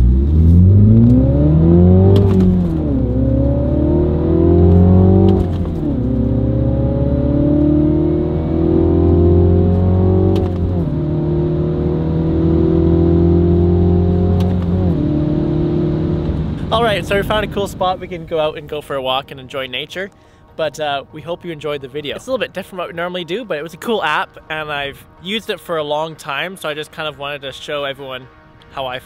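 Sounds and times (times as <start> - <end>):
car engine accelerating through gears: 0.0 - 18.1.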